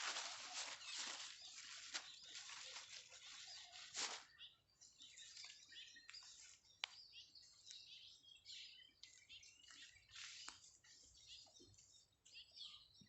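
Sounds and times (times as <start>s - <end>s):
brief rustle: 0.0s - 4.3s
birds chirping: 0.0s - 13.0s.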